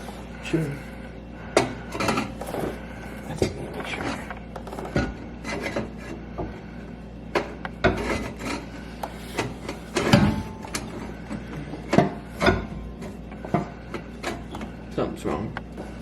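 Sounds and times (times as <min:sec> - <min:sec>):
metal pipe scraping and knocking: 0:04.0 - 0:06.2, 0:07.4 - 0:11.2.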